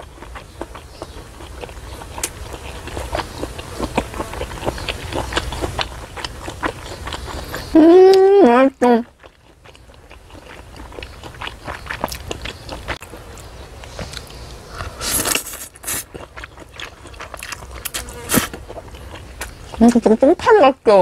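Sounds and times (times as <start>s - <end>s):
chewing with wet mouth clicks: 0.0s - 8.2s, 8.8s - 20.2s
noodles slurped: 13.9s - 19.2s.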